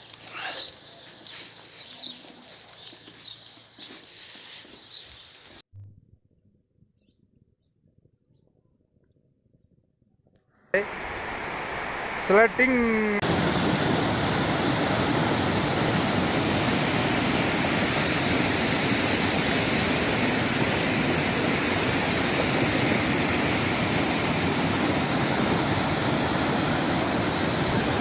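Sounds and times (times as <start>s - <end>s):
mountain stream rushing: 10.8s - 28.0s.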